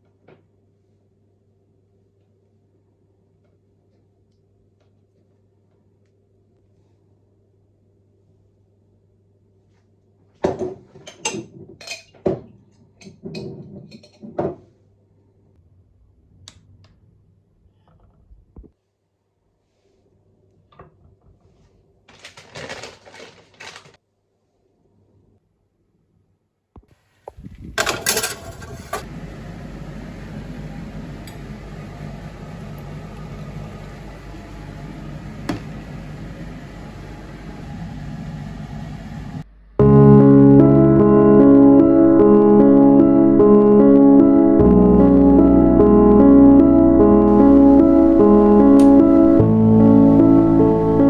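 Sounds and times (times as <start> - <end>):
dishes and utensils clattering: 10.5 - 14.6, 27.8 - 29.1
faint low hum: 15.0 - 21.9
motor humming: 29.1 - 39.4.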